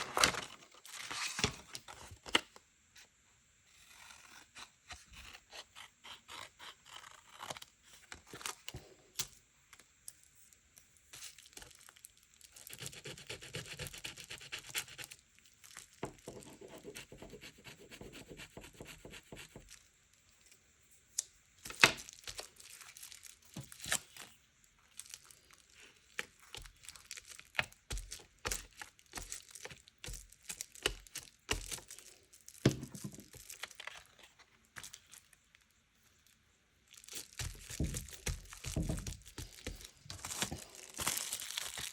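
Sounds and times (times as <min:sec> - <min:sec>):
paper crinkling: 0:00.0 - 0:02.4, 0:11.1 - 0:13.1, 0:21.6 - 0:35.6, 0:36.2 - 0:41.9.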